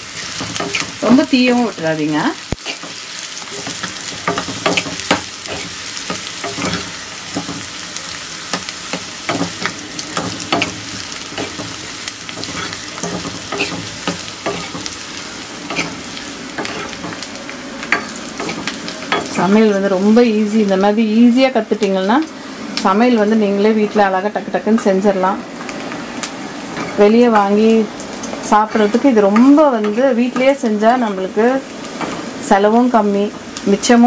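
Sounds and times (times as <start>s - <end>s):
onion sizzling in oil: 0.0s - 34.0s
steel ladle scraping pan: 8.6s - 14.9s.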